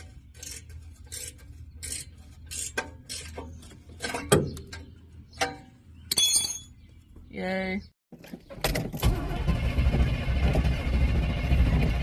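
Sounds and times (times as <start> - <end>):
hand tools clinking on metal: 5.4 - 6.8.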